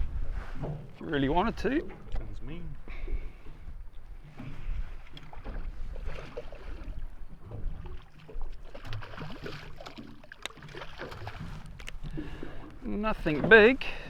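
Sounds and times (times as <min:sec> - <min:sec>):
wind buffeting microphone: 0:00.0 - 0:08.6
water slapping against boat hull: 0:00.0 - 0:14.0.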